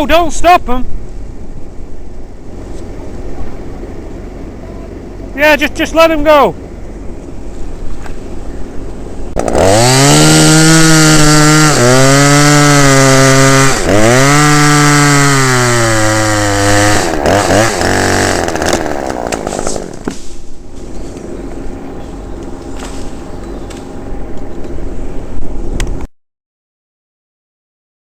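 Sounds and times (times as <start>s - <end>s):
chainsaw revving: 9.0s - 20.2s, 20.8s - 24.2s.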